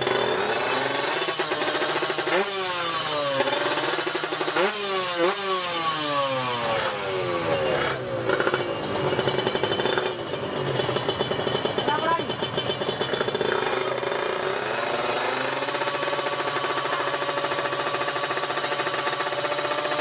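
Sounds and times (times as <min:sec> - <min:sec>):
motorcycles accelerating hard: 0:00.0 - 0:20.0
rattly engine running: 0:00.0 - 0:20.0.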